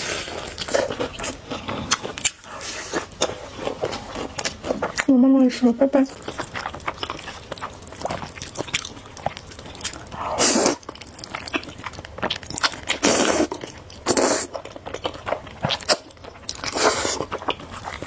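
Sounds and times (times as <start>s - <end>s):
wet chewing: 0.0s - 18.0s
noodle slurp: 10.2s - 10.8s, 12.9s - 14.6s, 16.7s - 17.3s.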